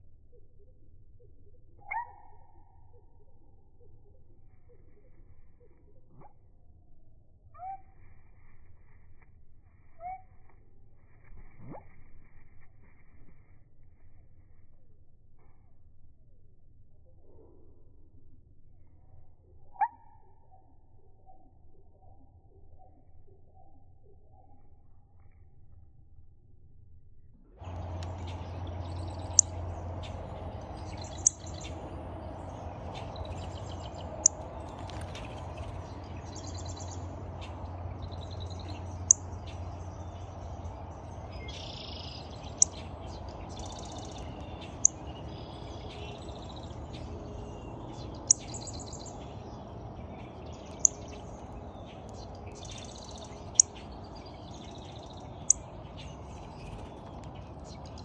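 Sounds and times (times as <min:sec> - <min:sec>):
steady low hum: 0:00.0 - 0:58.0
songbirds chirping and calling: 0:00.3 - 0:06.2, 0:27.6 - 0:58.0.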